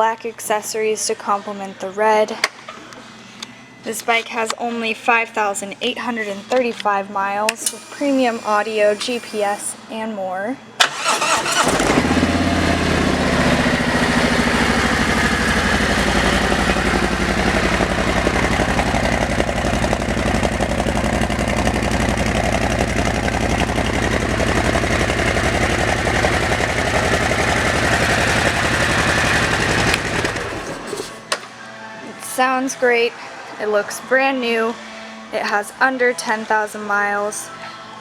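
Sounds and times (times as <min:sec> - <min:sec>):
motorcycle engine idling: 0:11.5 - 0:31.1.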